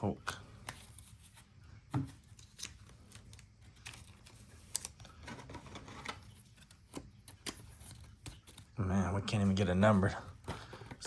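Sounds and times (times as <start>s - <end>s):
cards being flipped through: 0.5s - 8.8s.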